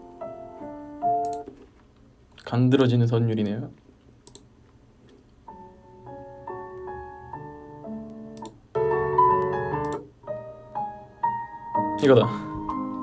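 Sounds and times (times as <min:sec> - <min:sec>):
solo piano music: 0:00.0 - 0:01.5, 0:05.4 - 0:13.0.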